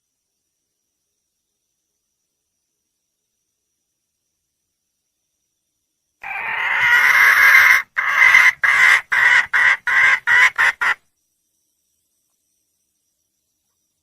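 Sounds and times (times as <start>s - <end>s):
junglefowl hen calling: 6.2s - 11.0s.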